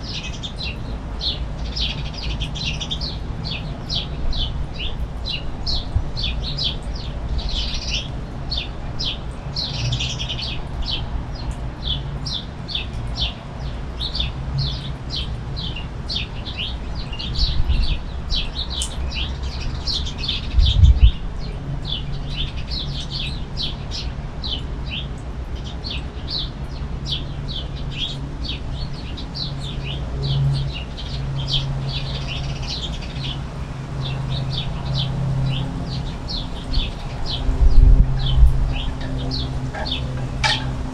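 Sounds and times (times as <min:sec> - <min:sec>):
finches chirping: 0:34.0 - 0:40.9
steady low rumble: 0:34.5 - 0:40.9.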